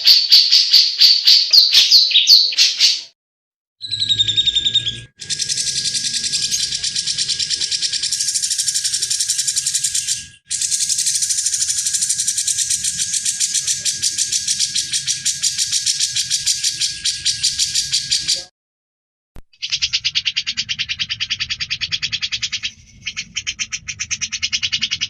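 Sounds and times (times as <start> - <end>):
bird rattling chatter: 5.2 - 18.5.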